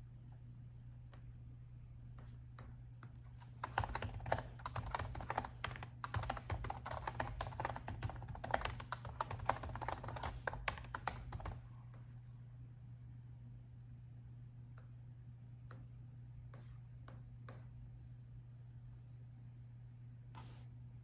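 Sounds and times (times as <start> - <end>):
fast typing on laptop keyboard: 3.6 - 11.6.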